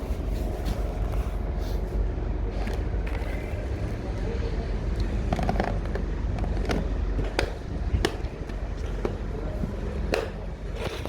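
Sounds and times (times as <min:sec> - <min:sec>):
wheels clanking over rail joints: 0:05.2 - 0:11.0.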